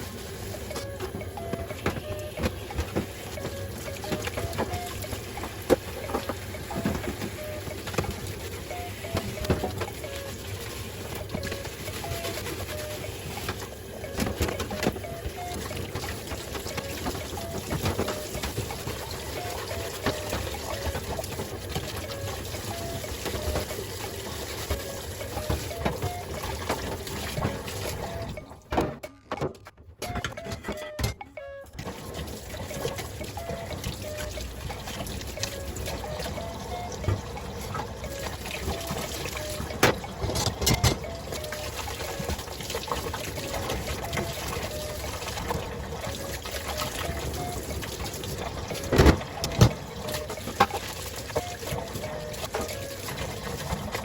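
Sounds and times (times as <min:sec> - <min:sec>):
water running and trickling: 0:15.0 - 0:28.4, 0:31.9 - 0:54.0.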